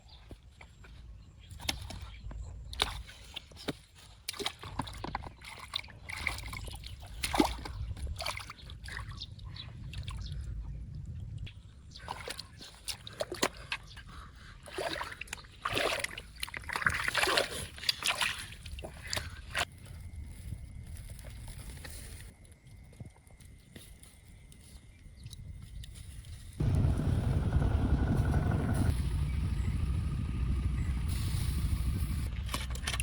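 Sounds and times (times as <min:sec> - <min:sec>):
water splashing and sloshing: 0:01.6 - 0:19.7, 0:32.2 - 0:33.0.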